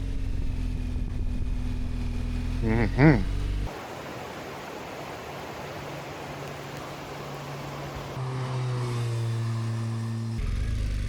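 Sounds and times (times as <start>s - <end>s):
motorcycle engine: 0.0s - 3.7s, 6.2s - 11.0s.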